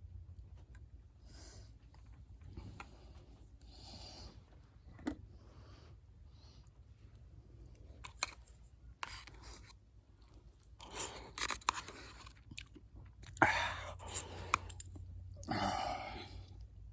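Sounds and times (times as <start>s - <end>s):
chewing and mouth sounds: 9.0s - 16.7s.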